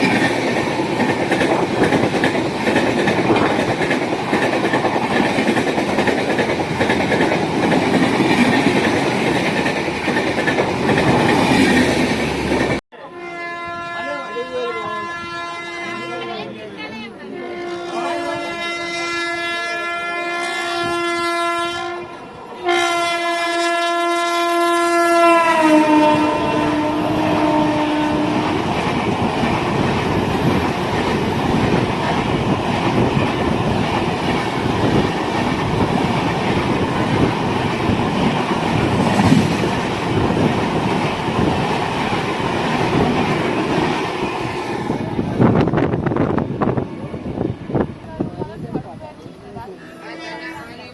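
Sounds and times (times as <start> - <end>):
train wheels clattering on rails: 0.0 - 12.8
locomotive horn blasts: 12.9 - 16.5, 17.3 - 28.5.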